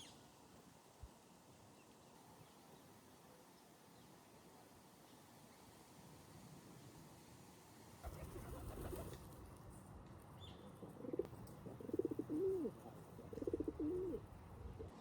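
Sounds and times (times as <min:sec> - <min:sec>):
pigeon cooing: 0:10.8 - 0:15.0.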